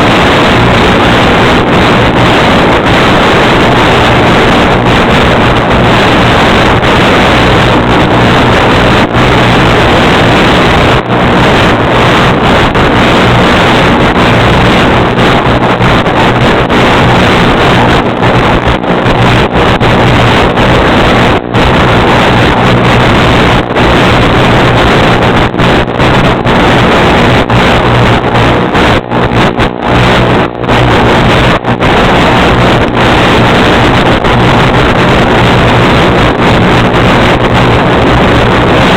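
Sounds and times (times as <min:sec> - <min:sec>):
wind rushing over microphone: 0:00.0 - 0:38.9.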